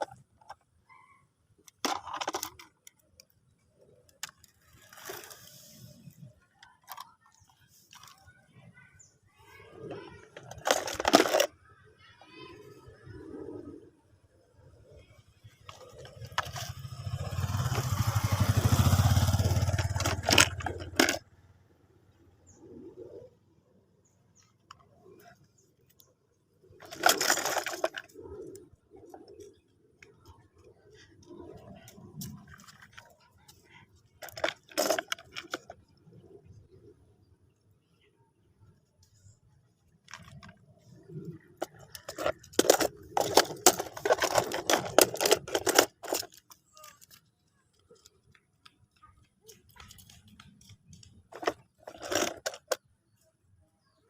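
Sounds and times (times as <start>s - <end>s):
toy vehicles clattering: 0.0s - 11.7s, 14.8s - 21.6s, 24.0s - 36.6s, 39.0s - 53.3s
hard objects clicking and knocking: 1.6s - 3.4s, 10.2s - 11.5s, 15.6s - 21.3s, 26.8s - 28.2s, 34.2s - 35.9s, 41.3s - 52.9s.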